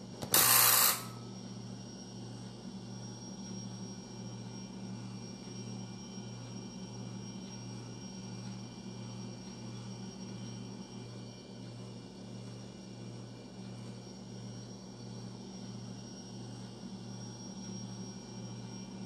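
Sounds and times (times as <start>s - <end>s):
thin high whine: 0.0s - 1.5s.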